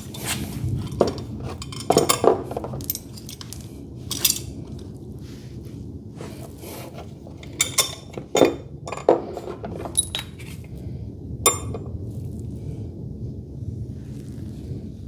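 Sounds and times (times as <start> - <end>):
metal tools clinking: 0.0 - 4.9, 6.2 - 10.8, 11.5 - 11.9.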